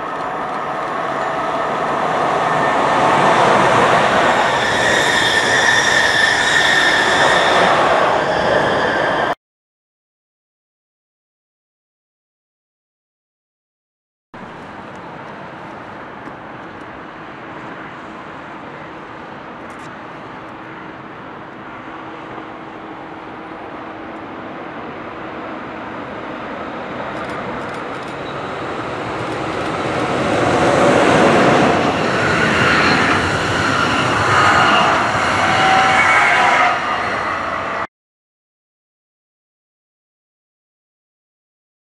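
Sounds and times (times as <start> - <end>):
train passing: 0.0 - 9.4, 14.4 - 37.9
wheel and rail noise: 0.0 - 9.4, 14.4 - 37.9.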